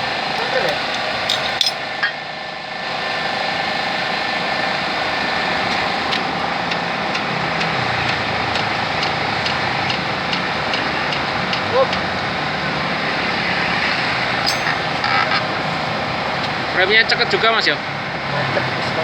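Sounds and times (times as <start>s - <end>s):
faint held tone: 14.5s - 15.4s.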